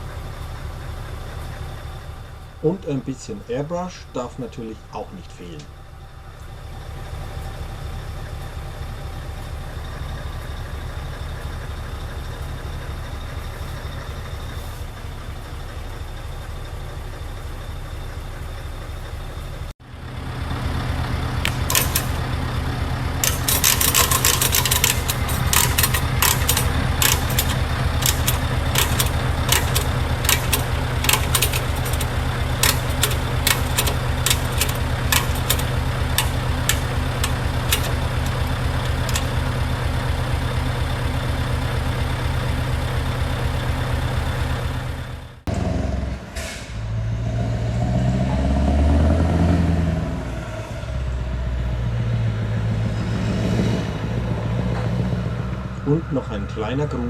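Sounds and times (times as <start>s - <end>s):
diesel engine droning: 0.0s - 57.0s
sharp clicks and knocks: 21.4s - 22.3s, 23.2s - 39.4s.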